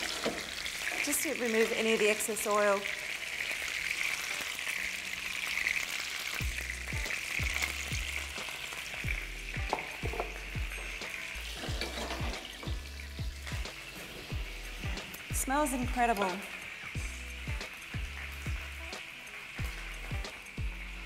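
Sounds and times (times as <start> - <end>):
chicken sizzling in frying oil: 0.0 - 21.0
background music with thudding beat: 6.4 - 21.0.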